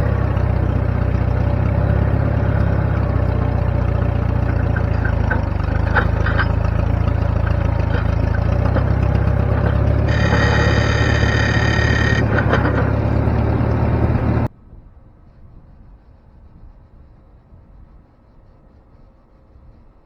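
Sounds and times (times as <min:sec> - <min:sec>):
engine idling: 0:00.0 - 0:14.5
high steady tone: 0:09.9 - 0:14.5.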